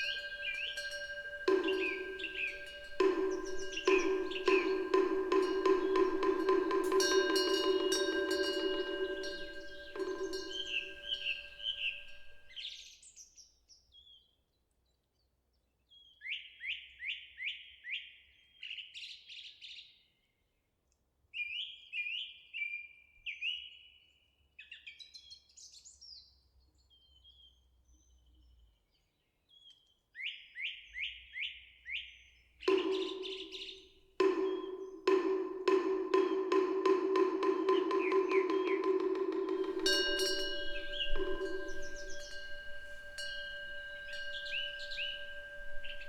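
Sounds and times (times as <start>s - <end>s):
small birds chirping: 0.0s - 12.4s, 37.2s - 46.0s
wooden temple fish knocks: 0.0s - 12.5s, 32.7s - 46.0s.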